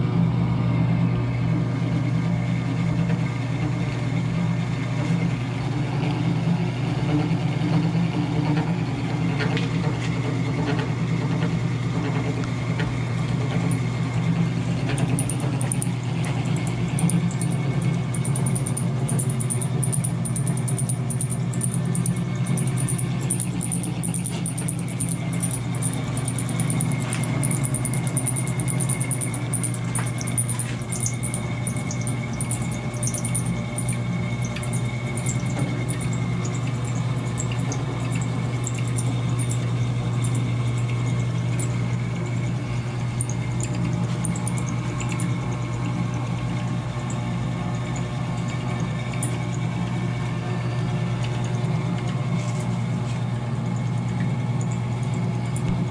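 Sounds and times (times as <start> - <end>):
milling machine humming: 13.4 - 41.8
faint high whine: 15.0 - 36.2
light ticks: 16.6 - 36.1.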